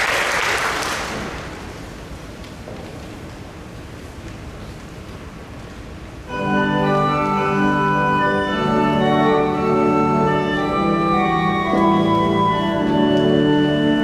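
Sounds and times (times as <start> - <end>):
pipe organ chords: 6.3 - 14.0.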